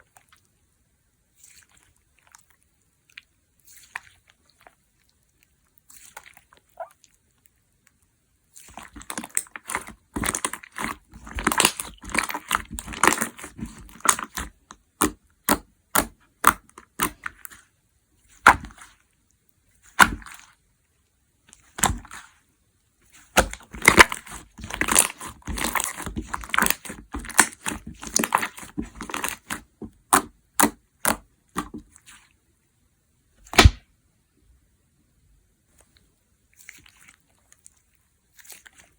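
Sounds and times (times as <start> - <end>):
slime crackling and popping: 8.6 - 17.6, 23.1 - 32.2, 33.4 - 33.8.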